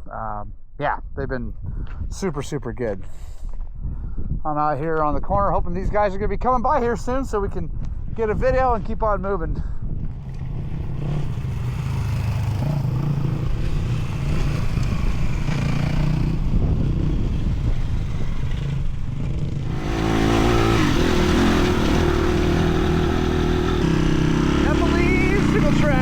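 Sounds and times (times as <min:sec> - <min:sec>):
dirt bike engines: 0:09.6 - 0:26.0.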